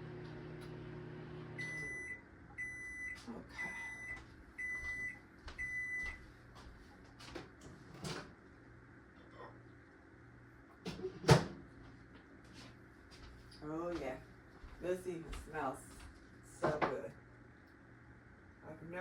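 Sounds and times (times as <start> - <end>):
microwave oven humming: 0.0 - 19.0
high microwave beeps: 1.5 - 6.2.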